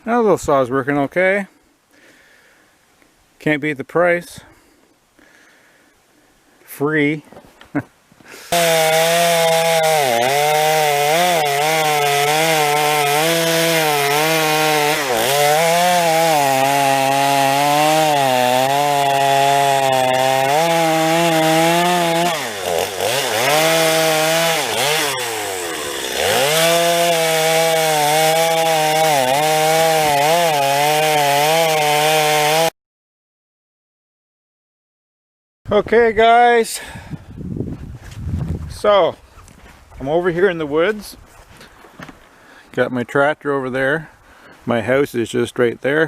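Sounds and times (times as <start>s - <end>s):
chainsaw cutting logs: 8.2s - 32.8s.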